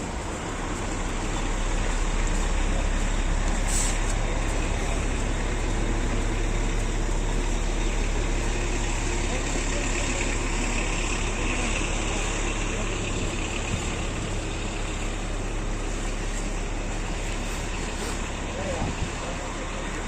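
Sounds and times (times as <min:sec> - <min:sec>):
city street traffic: 0:00.0 - 0:20.0
large vehicle engine rumble: 0:00.0 - 0:20.0
short hiss: 0:03.7 - 0:04.2.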